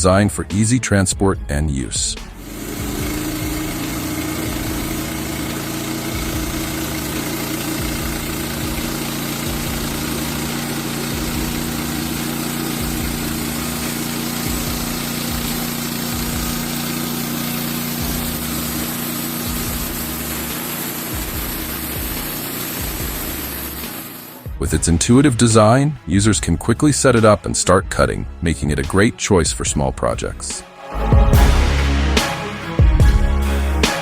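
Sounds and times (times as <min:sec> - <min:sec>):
gasoline engine running: 0:01.5 - 0:27.2.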